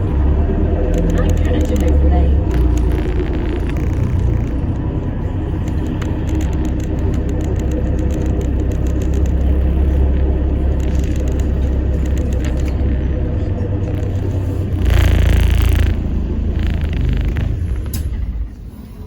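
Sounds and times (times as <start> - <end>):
bus engine drone: 0.0 - 19.0
faint steady hum: 0.0 - 19.0
road noise: 0.0 - 19.0.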